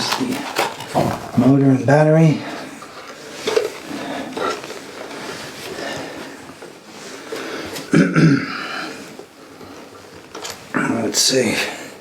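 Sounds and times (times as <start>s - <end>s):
packing material rustling: 0.0s - 7.9s.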